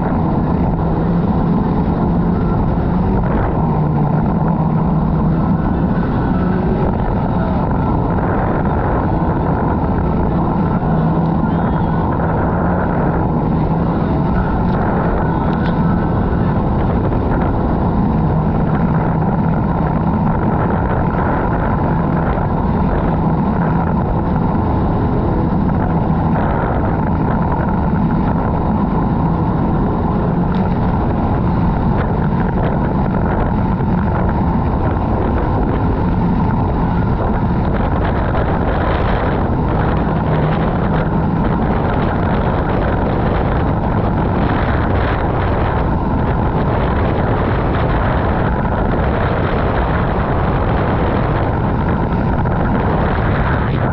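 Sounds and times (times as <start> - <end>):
jet ski engine drone: 0.0 - 53.9
wind noise on microphone: 0.0 - 53.9.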